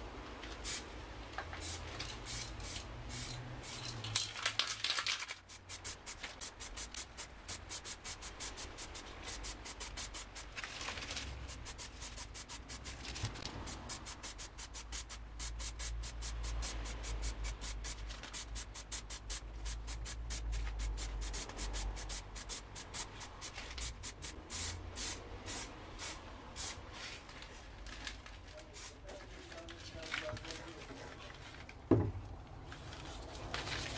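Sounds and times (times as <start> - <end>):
spray can hissing bursts: 0.6 - 0.9, 1.6 - 3.9, 5.4 - 10.6, 11.4 - 26.8.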